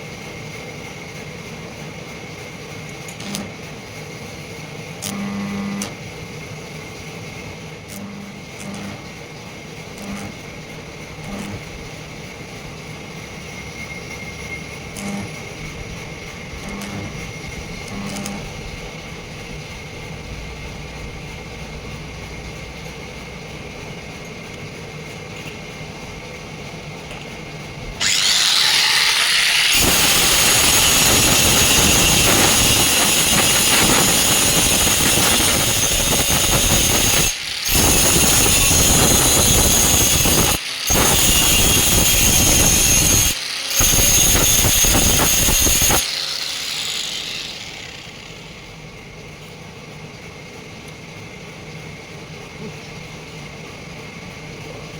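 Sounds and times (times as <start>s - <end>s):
low machine hum: 0.0s - 32.5s
power tool high whine: 3.1s - 3.6s, 5.0s - 6.0s, 7.9s - 19.0s, 28.0s - 49.2s.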